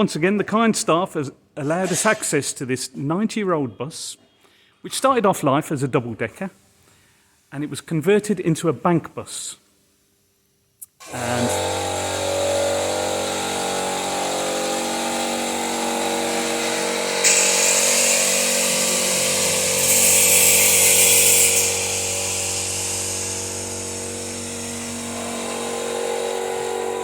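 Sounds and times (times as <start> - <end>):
loud high hiss: 11.0 - 27.0
power tool humming: 11.0 - 27.0.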